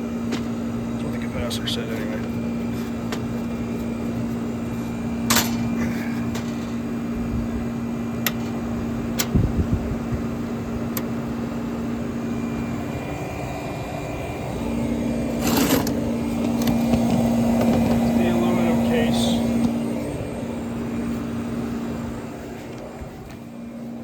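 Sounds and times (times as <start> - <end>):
air conditioner compressor hum: 0.0 - 24.0
fan and air noise: 0.0 - 24.0.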